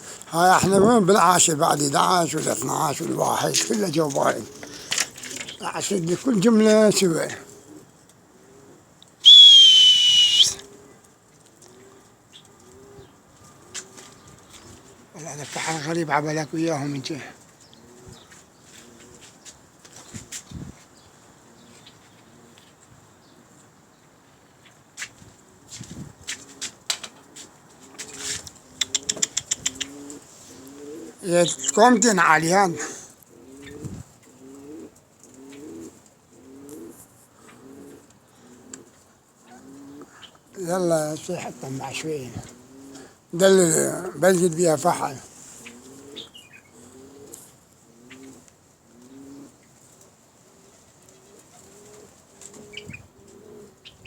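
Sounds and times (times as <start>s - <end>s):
pigeons cooing: 0.0s - 11.0s, 17.4s - 19.4s, 26.3s - 54.0s
falling whistle: 9.2s - 10.6s.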